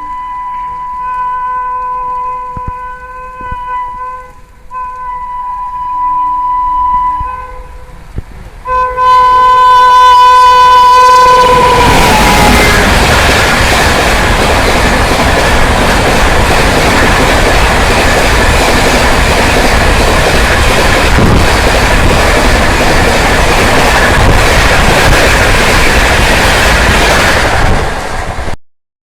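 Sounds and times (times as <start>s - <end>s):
train passing at speed: 0.0s - 28.6s
wheels clacking over rail joints: 11.3s - 28.6s.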